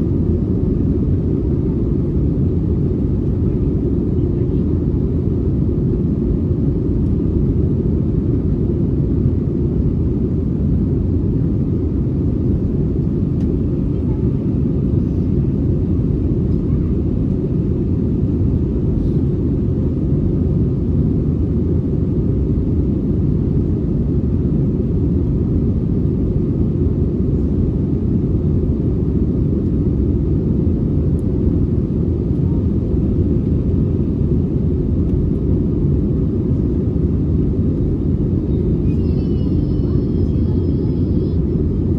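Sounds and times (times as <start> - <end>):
steady low rumble: 0.0 - 41.9.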